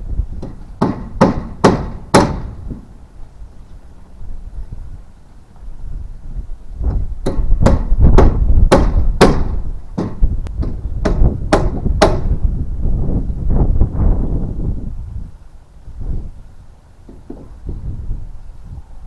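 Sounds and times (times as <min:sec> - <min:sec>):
wind rumble on microphone: 0:00.0 - 0:19.0
hammer driving nails into wood: 0:00.4 - 0:02.9, 0:07.2 - 0:12.4.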